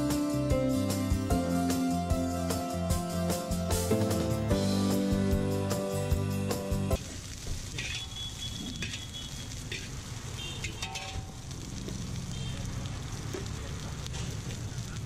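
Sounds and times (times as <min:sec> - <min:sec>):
background music: 0:00.0 - 0:07.0
rice sizzling in a wok: 0:07.0 - 0:15.0
metal spatula scraping wok: 0:10.6 - 0:11.3.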